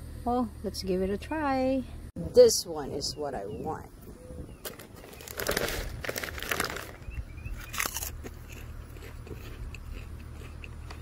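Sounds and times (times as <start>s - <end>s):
crunchy bites: 4.6s - 11.0s
soft chewing: 7.6s - 11.0s.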